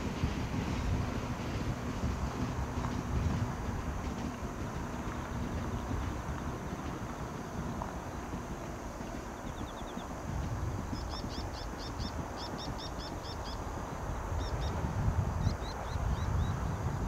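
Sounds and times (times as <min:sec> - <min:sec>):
low background rumble: 0:00.0 - 0:17.0
small bird calling: 0:09.3 - 0:10.1, 0:10.8 - 0:13.7.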